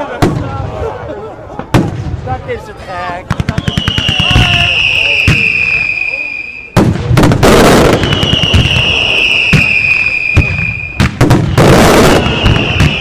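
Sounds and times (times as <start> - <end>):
fireworks bangs and crackling: 0.0 - 13.0
high steady whistle: 3.6 - 6.8, 7.9 - 11.0, 11.9 - 13.0.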